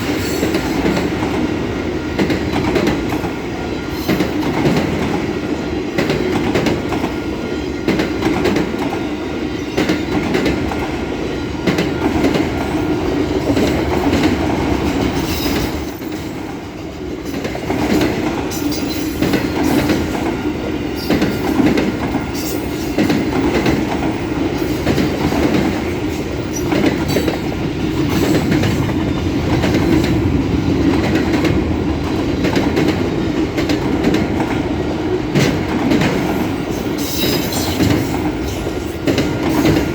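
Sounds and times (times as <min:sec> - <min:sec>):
freight train rumbling past: 0:00.0 - 0:39.9
wheels clattering over rail joints: 0:35.3 - 0:39.9
high wheel squeals: 0:36.8 - 0:38.7.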